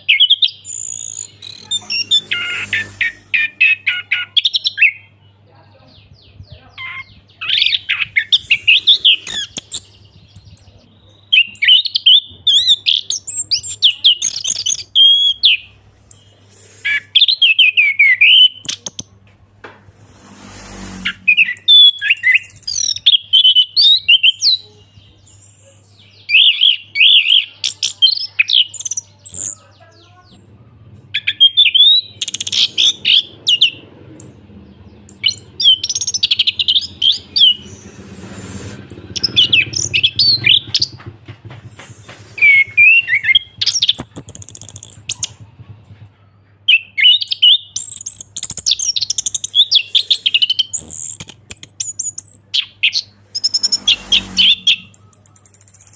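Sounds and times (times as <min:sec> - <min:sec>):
brief noisy rush: 0:19.8 - 0:21.6
thrush singing whistled phrases: 0:42.4 - 0:45.4.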